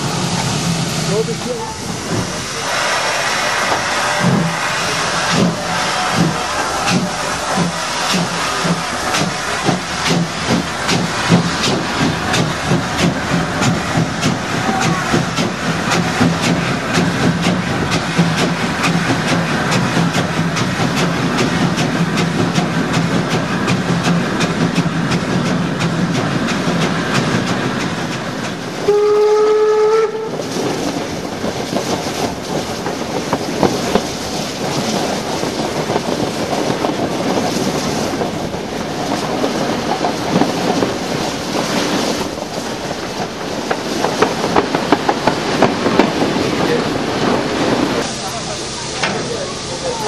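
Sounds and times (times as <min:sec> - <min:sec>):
train rail-joint clatter: 0:00.0 - 0:02.6, 0:03.6 - 0:48.4, 0:49.0 - 0:50.0
steam locomotive whistle: 0:02.6 - 0:08.3, 0:28.8 - 0:30.4.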